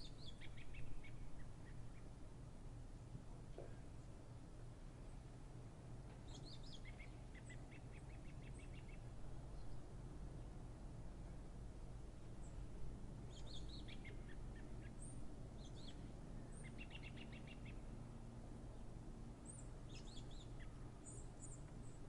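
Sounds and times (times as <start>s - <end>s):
small birds chirping: 0.0s - 2.1s, 6.2s - 9.9s, 13.2s - 17.9s, 19.4s - 22.0s.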